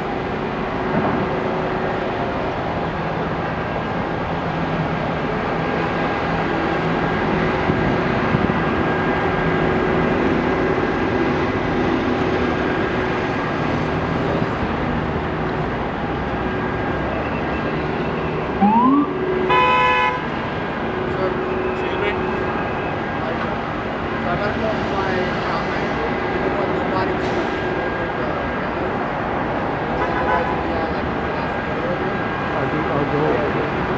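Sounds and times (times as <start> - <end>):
engines rumbling: 0.0 - 33.9
siren whoop: 17.6 - 19.8
vehicle horn blast: 19.4 - 20.4, 30.0 - 30.6.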